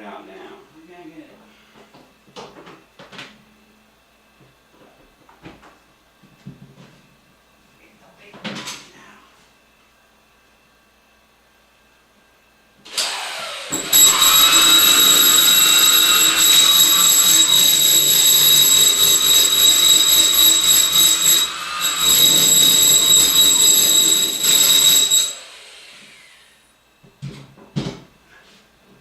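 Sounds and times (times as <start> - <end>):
electric tool whining: 12.9 - 26.6.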